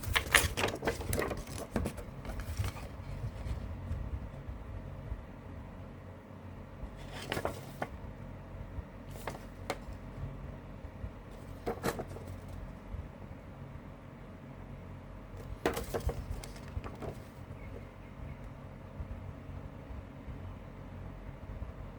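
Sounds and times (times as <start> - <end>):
low steady hum: 0.0 - 21.9
cd case clicks and knocks: 15.4 - 17.3.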